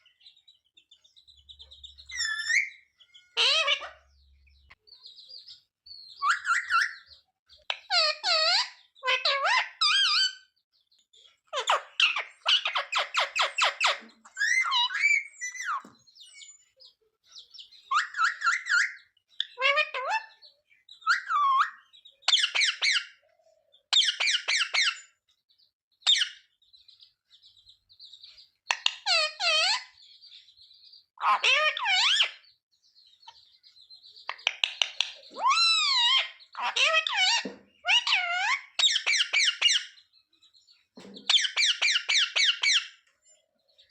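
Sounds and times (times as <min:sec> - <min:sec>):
parakeet calling shrilly: 0:02.1 - 0:04.1, 0:06.2 - 0:07.1, 0:07.8 - 0:10.5, 0:11.5 - 0:15.9, 0:17.9 - 0:20.4, 0:21.0 - 0:23.2, 0:23.9 - 0:25.1, 0:28.7 - 0:30.0, 0:31.2 - 0:32.4, 0:34.3 - 0:40.0, 0:41.3 - 0:43.0.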